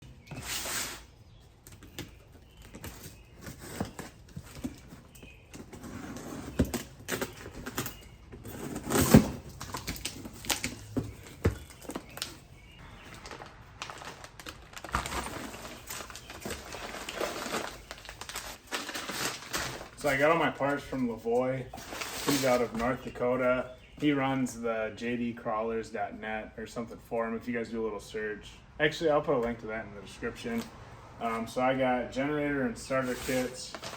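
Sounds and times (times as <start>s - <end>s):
tools and metal parts handled: 1.6s - 12.4s.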